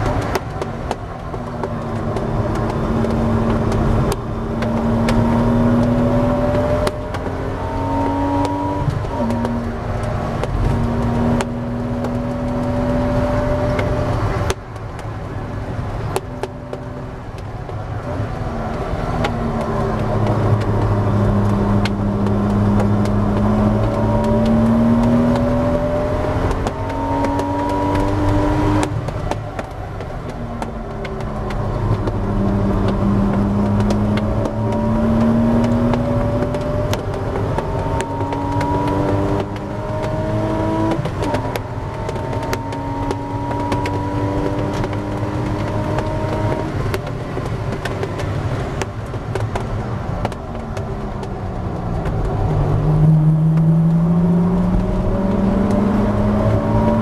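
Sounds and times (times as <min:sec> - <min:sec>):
car engine revving: 0:00.0 - 0:57.0
wind and tyre noise: 0:00.0 - 0:57.0.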